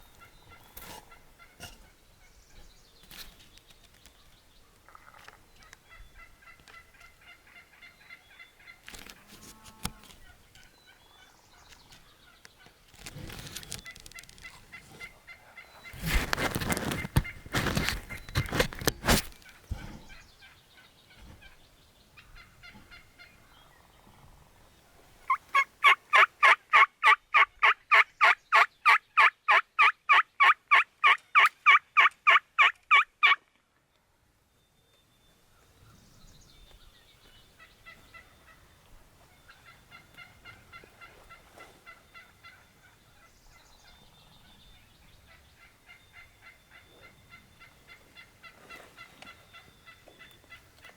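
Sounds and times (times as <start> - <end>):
wild turkeys gobbling: 0.1 - 2.0, 4.9 - 9.2, 13.8 - 24.0, 25.2 - 33.4, 37.6 - 44.0, 45.2 - 50.9.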